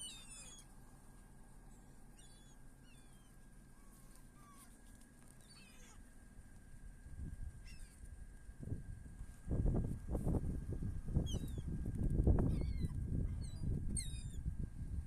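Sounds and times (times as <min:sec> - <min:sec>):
seagulls calling: 0:00.0 - 0:00.6, 0:07.6 - 0:08.0.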